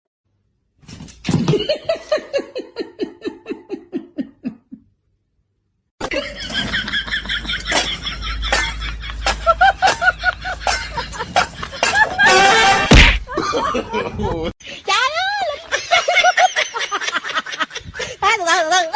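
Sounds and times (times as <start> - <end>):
fast laughter: 6.0 - 14.5.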